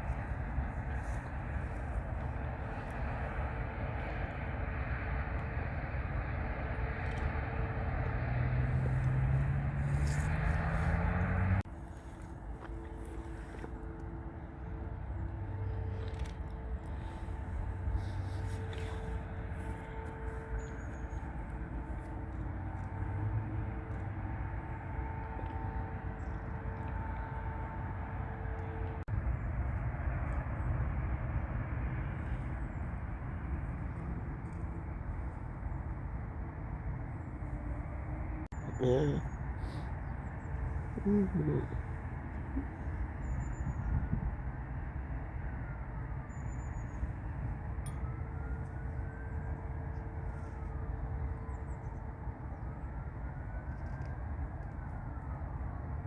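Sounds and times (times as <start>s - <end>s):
jet engine whine: 0.0s - 38.5s.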